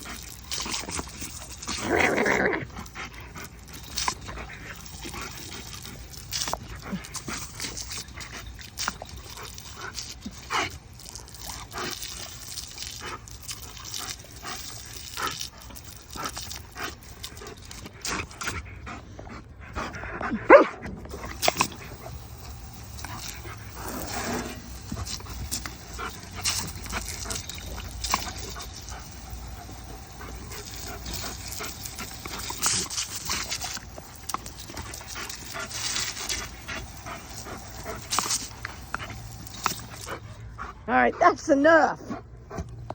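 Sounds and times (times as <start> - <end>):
puppy barking and yipping: 20.5 - 20.8.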